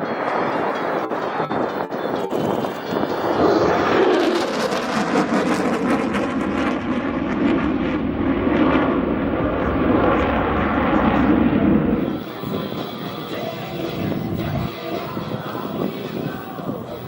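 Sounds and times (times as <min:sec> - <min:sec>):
jet engine rush with crackle: 0:00.0 - 0:17.0.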